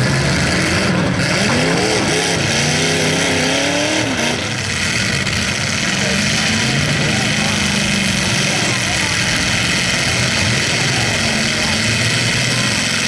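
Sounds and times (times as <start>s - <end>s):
car engines running hard: 0.0s - 13.0s
engine revving: 0.0s - 13.0s.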